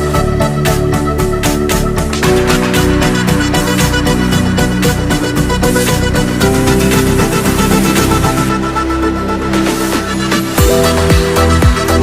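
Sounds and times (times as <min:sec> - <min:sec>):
electronic dance music: 0:00.0 - 0:12.0
deep kick drums: 0:10.6 - 0:12.0.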